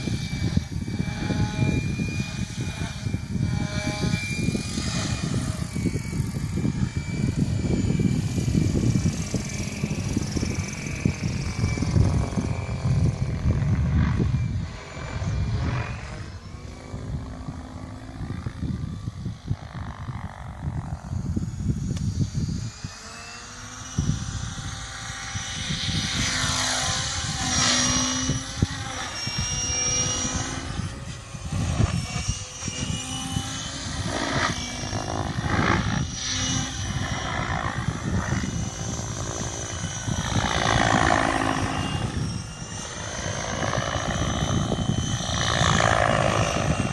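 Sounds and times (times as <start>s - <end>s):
rotor blades swishing: 0.0s - 46.9s.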